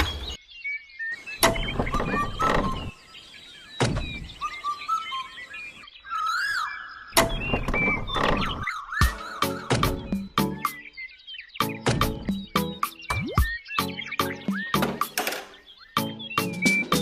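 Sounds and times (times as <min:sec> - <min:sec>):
birds chirping: 0:00.0 - 0:17.0
sharp knocks and clunks: 0:01.4 - 0:02.9, 0:03.8 - 0:04.3, 0:07.2 - 0:08.7, 0:09.6 - 0:10.6, 0:11.8 - 0:12.6, 0:14.4 - 0:15.6.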